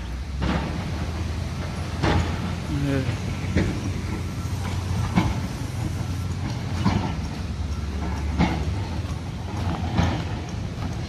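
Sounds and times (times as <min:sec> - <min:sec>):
vehicle low rumble: 0:00.0 - 0:11.0
rhythmic clack: 0:03.3 - 0:11.0.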